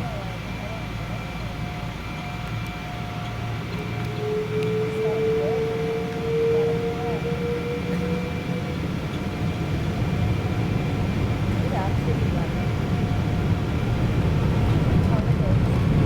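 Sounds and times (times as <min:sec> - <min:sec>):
airliner cabin drone: 0:00.0 - 0:16.0
rising whine: 0:02.4 - 0:11.5.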